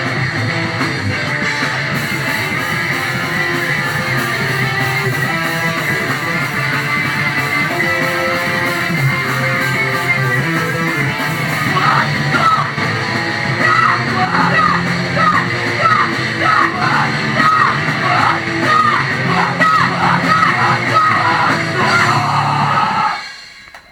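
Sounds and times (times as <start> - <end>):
rock band playing: 0.0 - 23.7
vocalist yelling: 11.5 - 12.9, 13.5 - 23.2.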